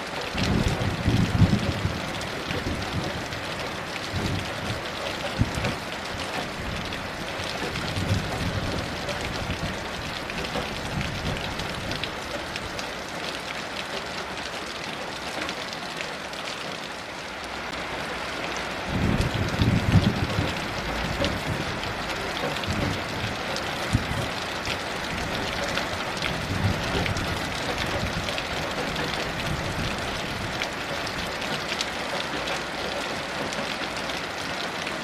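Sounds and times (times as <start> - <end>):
heavy rain falling: 0.0 - 35.0
distant thunder rumble: 0.4 - 12.9, 18.9 - 31.6.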